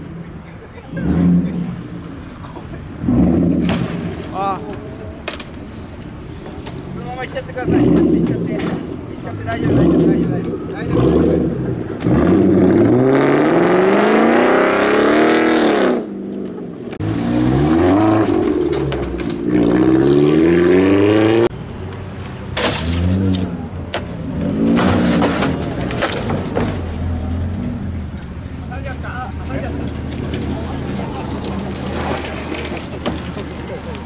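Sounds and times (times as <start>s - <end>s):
car engine revving: 0.9s - 2.1s, 2.9s - 4.3s, 7.0s - 21.5s.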